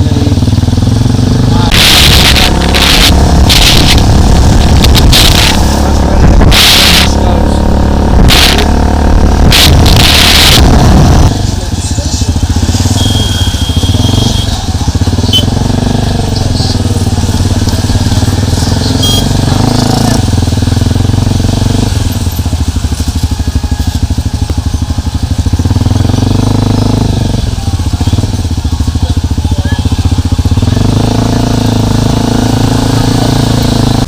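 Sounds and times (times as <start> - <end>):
motorcycle engine running: 0.0 - 34.0
high-pitched tone: 1.4 - 11.3, 12.3 - 20.3.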